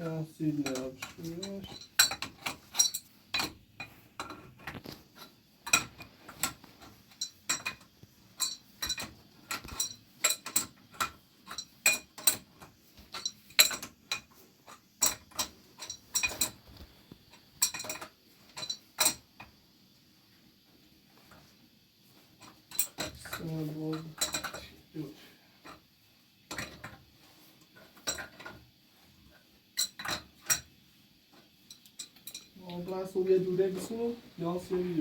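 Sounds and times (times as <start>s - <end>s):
metal tools clinking: 0.5s - 4.8s, 5.6s - 16.6s, 17.3s - 19.2s, 22.4s - 24.8s, 31.7s - 32.7s.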